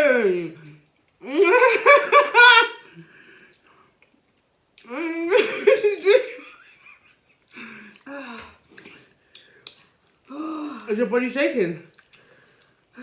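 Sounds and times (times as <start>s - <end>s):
laughter: 1.4s - 3.0s, 5.3s - 7.5s.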